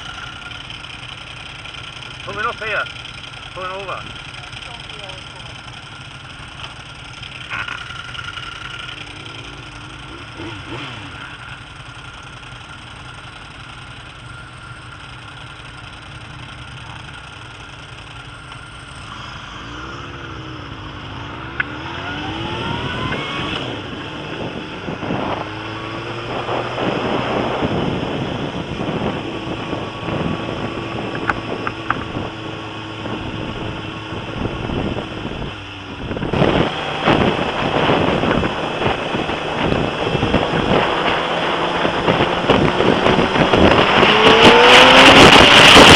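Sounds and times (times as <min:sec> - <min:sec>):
motorcycle engine accelerating: 0:00.0 - 0:45.9
wind noise on microphone: 0:21.8 - 0:45.9.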